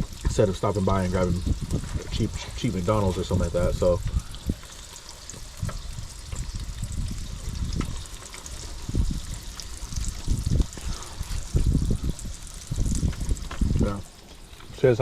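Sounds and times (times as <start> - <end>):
rainwater trickling and dripping: 0.0 - 15.0
low knocks and thumps: 11.4 - 14.1.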